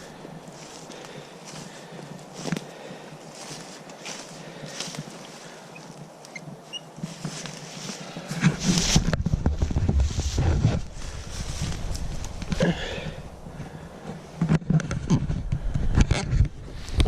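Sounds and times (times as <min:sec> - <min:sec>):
rustling in dry leaves: 0:00.0 - 0:14.4
microphone handling rumble: 0:07.0 - 0:17.0.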